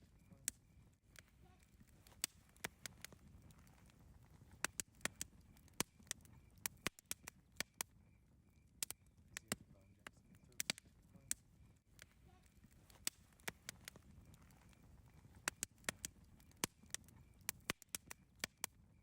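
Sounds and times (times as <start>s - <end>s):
campfire crackling and popping: 0.0s - 19.0s
faint high chirps: 4.5s - 19.0s.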